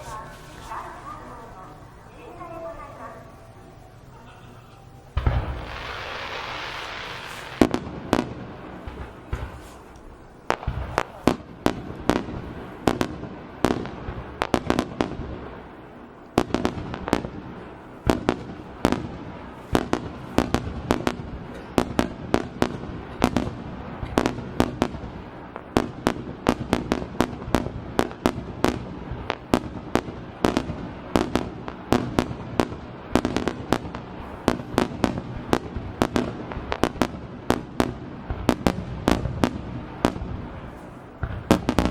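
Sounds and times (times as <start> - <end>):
firework shells bursting: 4.7 - 41.9.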